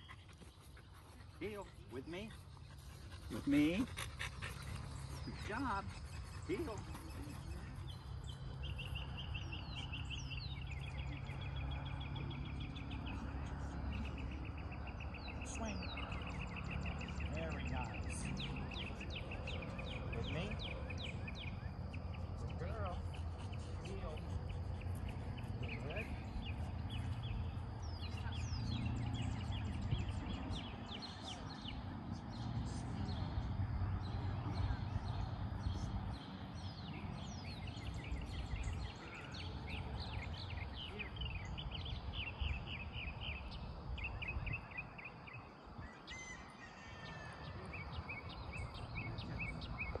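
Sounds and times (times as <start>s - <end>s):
small birds chirping: 0.0s - 50.0s
wind rumble on microphone: 25.6s - 36.0s, 41.4s - 46.1s.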